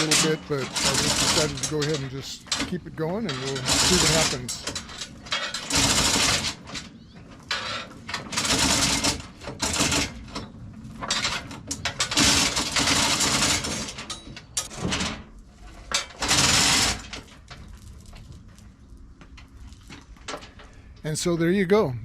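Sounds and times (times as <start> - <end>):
chain hoist chain clattering: 0.0 - 6.9, 7.5 - 15.2, 15.8 - 17.2.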